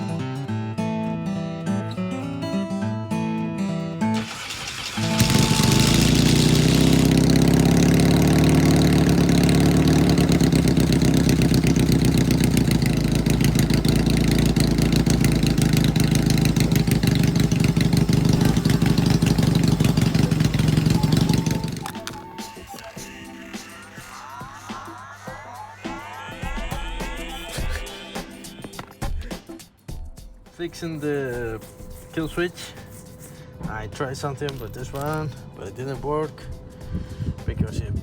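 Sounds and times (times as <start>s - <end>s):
motorcycle engine running: 4.2s - 23.0s.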